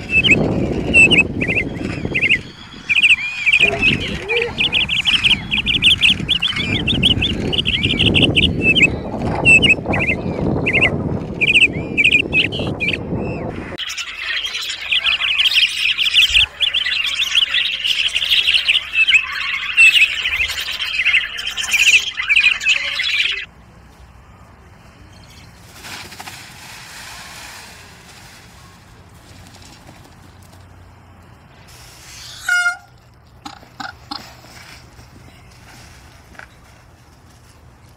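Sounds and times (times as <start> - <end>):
gulls calling: 0.0 - 23.5
budgerigar chattering warble: 0.1 - 8.9.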